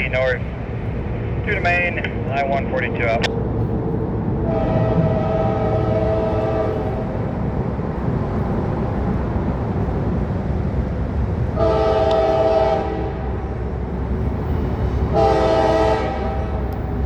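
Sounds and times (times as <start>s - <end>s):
train rumble: 0.0s - 17.0s
locomotive horn: 4.4s - 7.1s, 11.6s - 13.4s, 15.1s - 16.7s.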